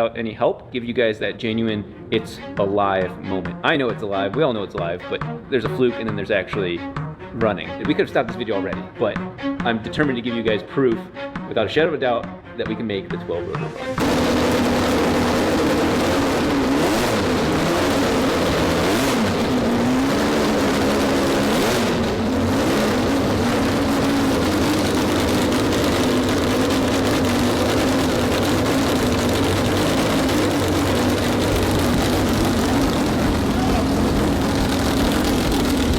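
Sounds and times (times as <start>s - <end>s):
rotary engine running: 13.9s - 35.9s.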